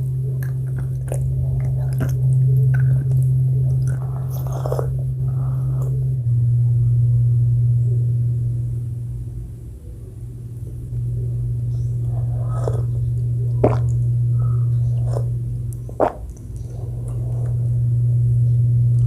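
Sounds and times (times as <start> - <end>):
chewing with wet mouth clicks: 0.0 - 5.1, 14.9 - 17.6
steady low hum: 0.0 - 19.0.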